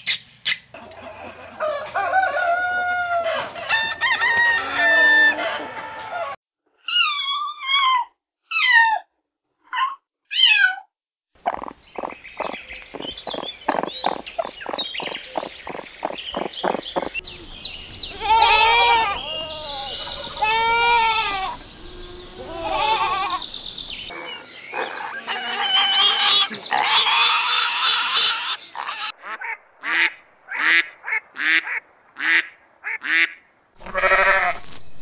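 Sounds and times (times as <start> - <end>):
ducks quacking: 11.4 - 17.5, 18.1 - 23.4
young raccoons chittering: 11.4 - 23.4
goat kid bleating: 18.1 - 23.4, 33.8 - 34.7.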